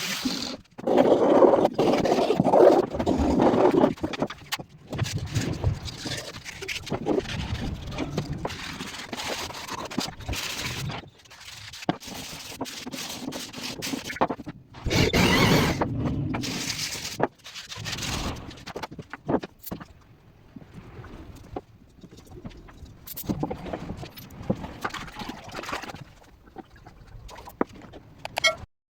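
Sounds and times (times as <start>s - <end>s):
hand tools scraping wood: 11.4s - 18.9s.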